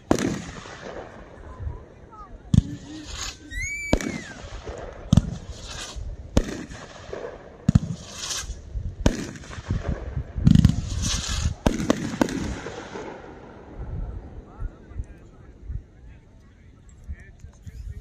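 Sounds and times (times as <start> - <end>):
firework shots: 0.0 - 14.5
firework hiss: 2.5 - 13.5
falling firework whistle: 2.8 - 4.5.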